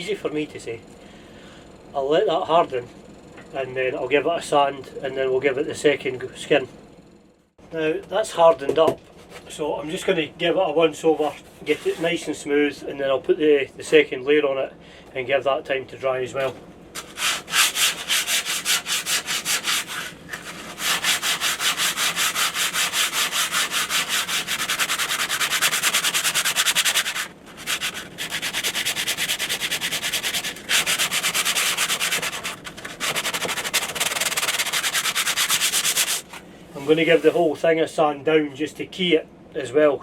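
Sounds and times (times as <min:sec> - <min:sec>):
sandpaper sanding back and forth: 0:17.0 - 0:37.5.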